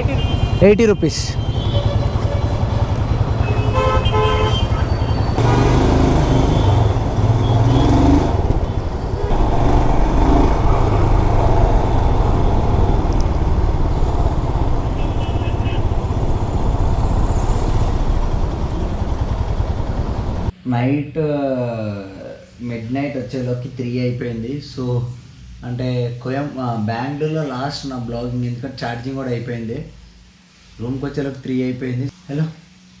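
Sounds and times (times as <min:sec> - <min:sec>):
city traffic: 0:00.0 - 0:20.5
motorcycle engine rumble: 0:00.0 - 0:20.5
vehicle horns tooting: 0:00.0 - 0:20.5.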